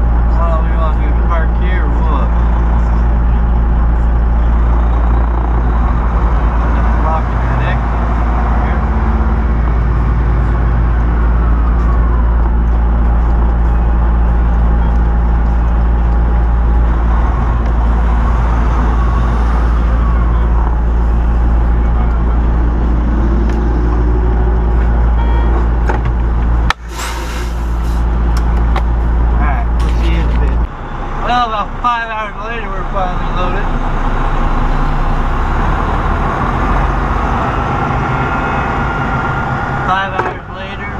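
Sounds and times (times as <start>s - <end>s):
diesel truck engine rumbling: 0.0s - 40.9s.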